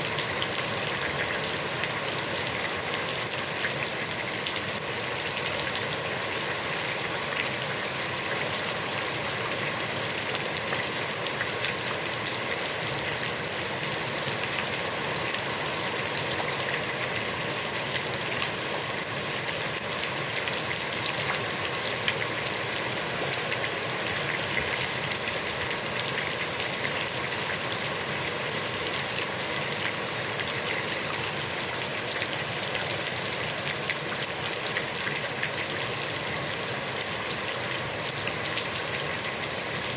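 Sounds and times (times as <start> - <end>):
heavy rain on water: 0.0 - 39.9.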